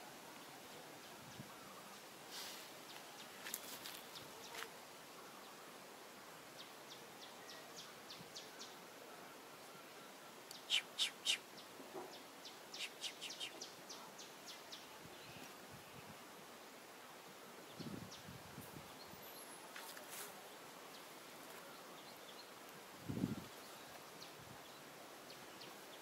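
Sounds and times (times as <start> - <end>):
quiet outdoor background noise: 0.0 - 26.0
sharp bird chirps: 10.5 - 11.4, 12.8 - 13.6.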